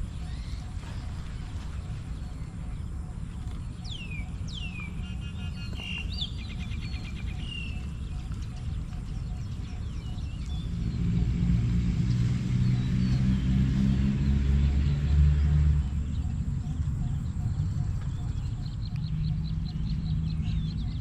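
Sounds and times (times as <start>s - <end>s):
steady low rumble: 0.0s - 21.0s
vehicle engine hum approaching: 0.0s - 21.0s.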